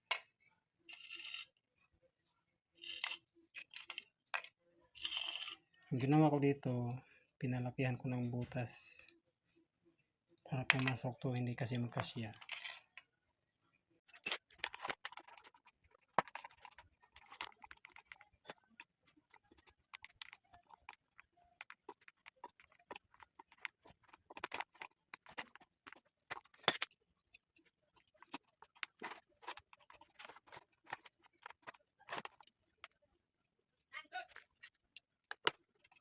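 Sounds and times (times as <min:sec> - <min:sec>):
plastic parts clicking and tapping: 0:14.1 - 0:33.0, 0:34.3 - 0:36.0.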